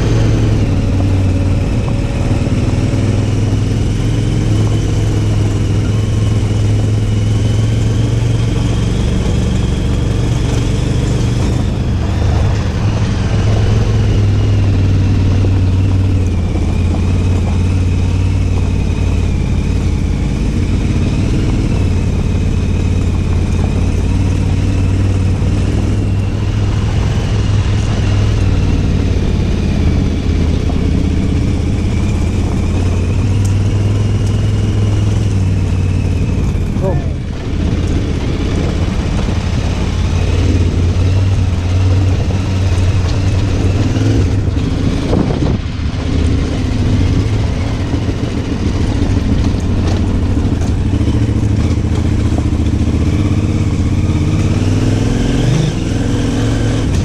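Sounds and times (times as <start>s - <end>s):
motorcycle engine idling: 44.4s - 54.6s.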